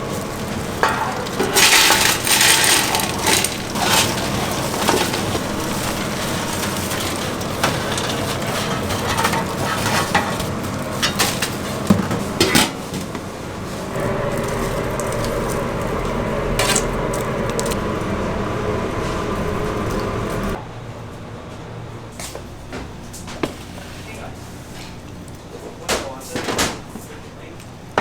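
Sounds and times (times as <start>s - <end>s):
utensils and dishes clinking: 0.0s - 12.8s
loud rush of noise: 13.3s - 20.6s.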